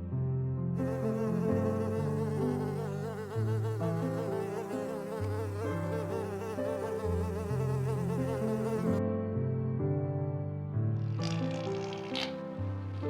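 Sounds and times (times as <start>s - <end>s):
flying insect buzzing: 0.8s - 9.0s, 11.0s - 13.0s.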